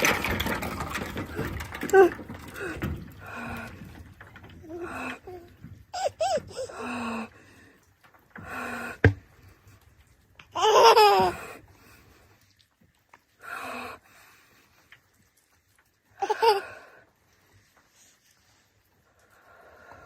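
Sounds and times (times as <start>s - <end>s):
baby babbling and laughing: 4.7s - 6.9s, 10.6s - 11.6s, 16.2s - 16.6s.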